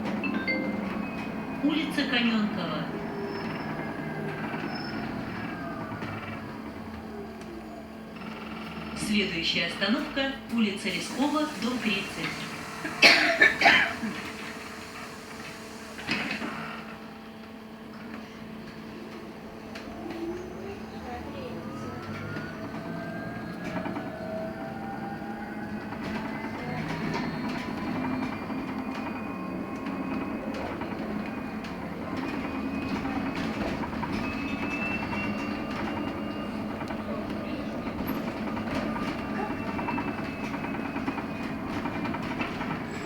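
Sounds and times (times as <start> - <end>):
electric bus hum: 0.0 - 43.0
road and tyre rumble: 18.0 - 43.0.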